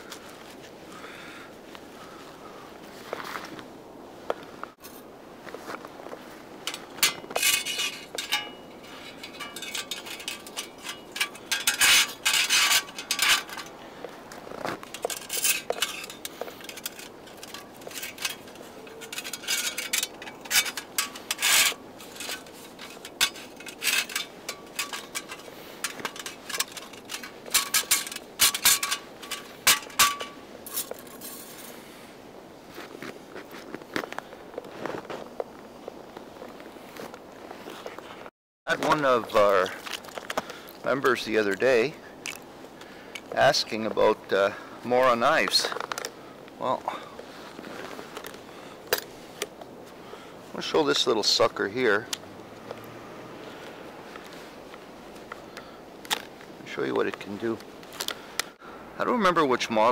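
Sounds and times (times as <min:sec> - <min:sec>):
metal objects clinking and rattling: 0:06.6 - 0:13.8, 0:14.6 - 0:31.8.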